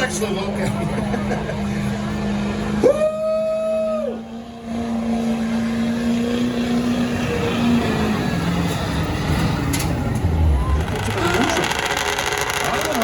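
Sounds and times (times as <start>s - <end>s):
rough engine noise: 0.0s - 13.0s
vehicle engine running: 0.0s - 13.0s.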